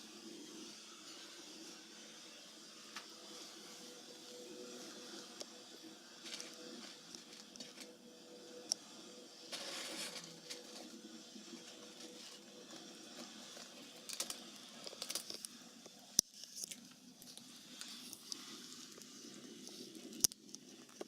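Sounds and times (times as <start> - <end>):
chip bag rustling and crinkling: 6.2 - 8.0, 9.5 - 15.5
sharp crackles and clicks: 11.6 - 21.0.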